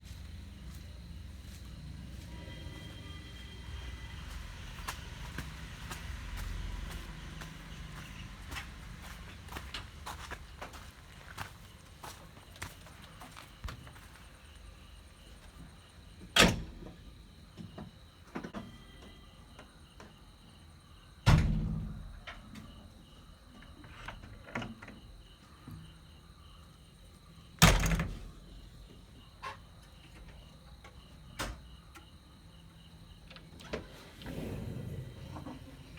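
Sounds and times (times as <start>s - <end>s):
faint high whine: 0.1s - 9.8s
diesel engine running: 1.3s - 10.6s.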